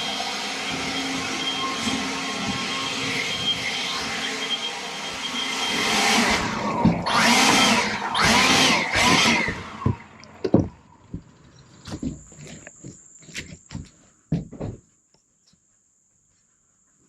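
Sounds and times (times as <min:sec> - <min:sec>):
motor running and revving: 0:00.0 - 0:10.3.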